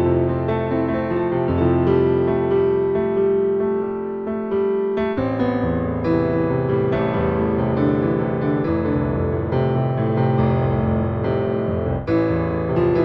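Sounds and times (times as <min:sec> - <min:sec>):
gentle piano piece: 0:00.0 - 0:13.0.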